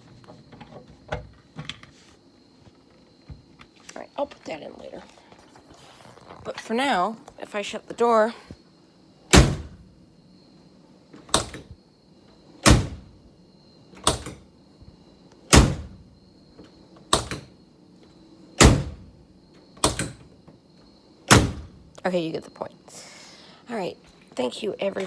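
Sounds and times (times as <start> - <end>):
car door slamming: 9.3 - 9.8, 12.6 - 13.1, 15.5 - 16.0, 18.6 - 19.1, 21.3 - 21.8.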